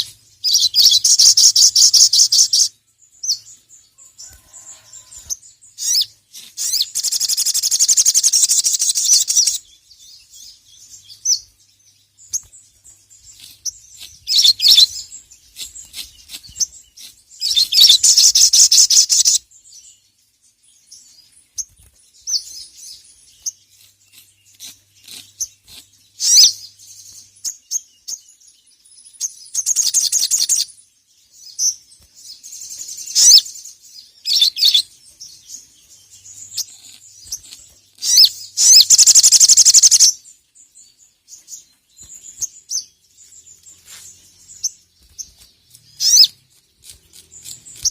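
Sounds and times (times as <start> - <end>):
sharp bird chirps: 0.0 - 47.9
bird chattering trills: 36.4 - 40.2.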